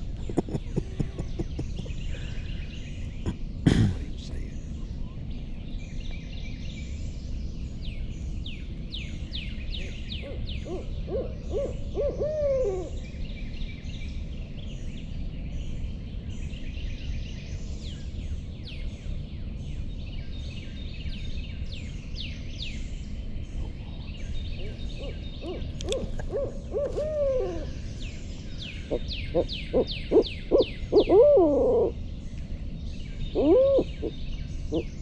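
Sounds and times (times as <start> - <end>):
owl hooting: 9.8 - 13.0, 24.6 - 32.0, 33.2 - 35.0.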